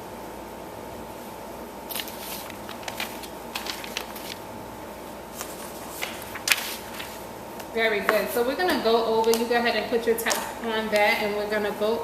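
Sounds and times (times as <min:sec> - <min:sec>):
faint steady hum: 0:00.0 - 0:12.0
paper rustling and shuffling: 0:01.9 - 0:04.5, 0:05.3 - 0:07.3.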